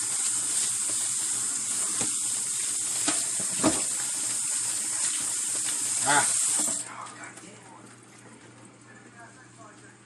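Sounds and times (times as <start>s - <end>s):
tap water running into sink: 0.0s - 6.8s.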